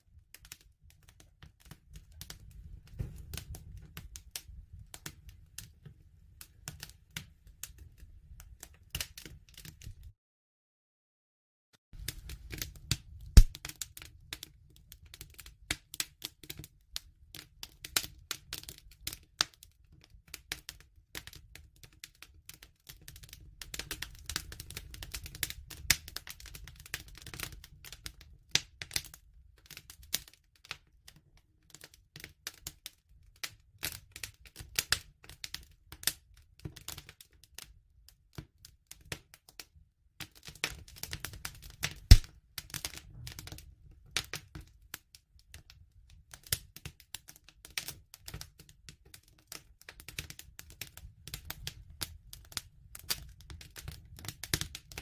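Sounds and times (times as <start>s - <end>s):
wood fire crackling and popping: 0.1s - 10.1s, 12.0s - 32.9s, 33.8s - 37.7s, 40.2s - 55.0s
low rumble of flames: 2.0s - 6.7s, 12.0s - 13.6s.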